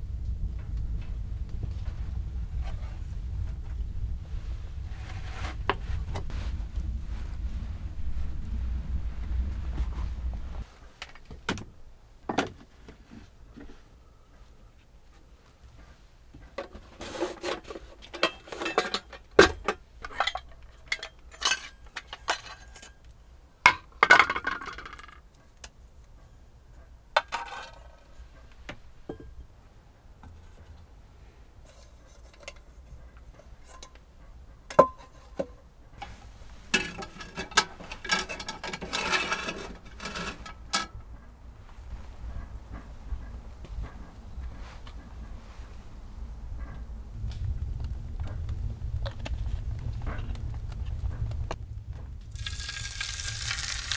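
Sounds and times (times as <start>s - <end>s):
small hard objects clinking: 52.3s - 53.9s.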